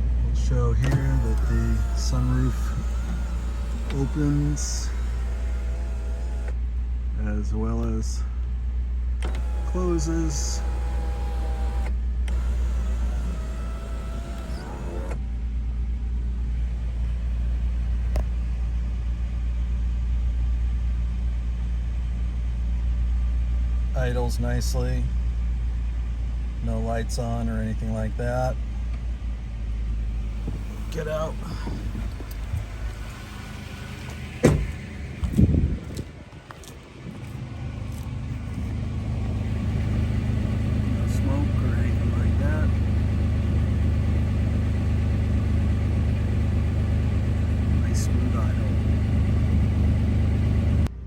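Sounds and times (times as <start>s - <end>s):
car engine idling: 0.0s - 7.1s, 8.3s - 51.0s
car door thump: 0.8s - 6.6s, 30.2s - 35.5s
click: 0.8s - 6.6s.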